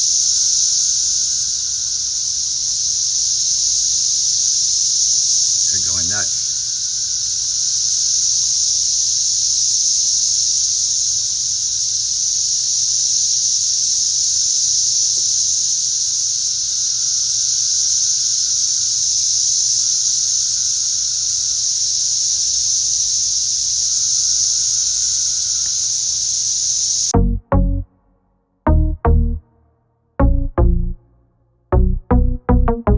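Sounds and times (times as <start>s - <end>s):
cicadas droning: 0.0s - 27.2s
music beats: 27.1s - 28.0s, 28.7s - 29.4s, 30.2s - 31.0s, 31.7s - 32.9s.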